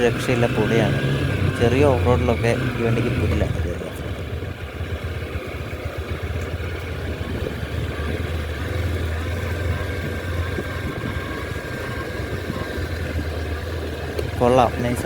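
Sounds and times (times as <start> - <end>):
motorcycle engine running steadily: 0.0 - 15.0.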